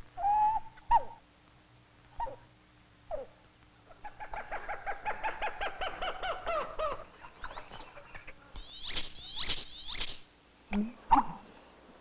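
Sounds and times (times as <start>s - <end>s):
rapid repeated bird notes: 4.0s - 10.3s
high buzzy bird notes: 7.4s - 10.3s.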